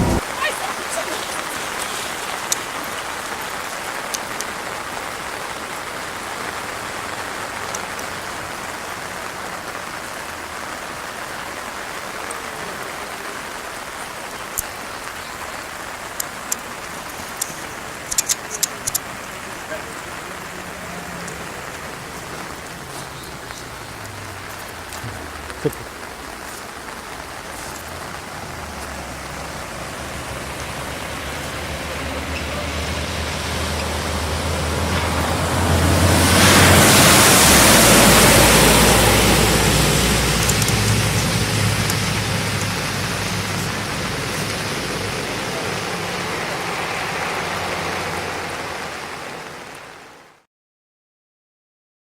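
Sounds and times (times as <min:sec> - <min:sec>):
low rumble: 0:00.0 - 0:00.2
rain and floodwater rushing: 0:00.0 - 0:50.5.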